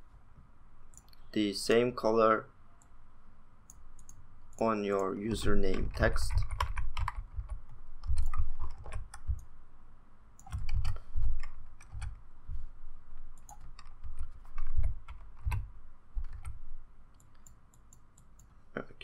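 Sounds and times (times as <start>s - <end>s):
computer keyboard clicking: 3.7s - 9.5s, 10.4s - 12.1s, 13.4s - 15.6s, 16.2s - 16.6s
mouse clicking: 3.7s - 9.5s, 13.4s - 16.6s.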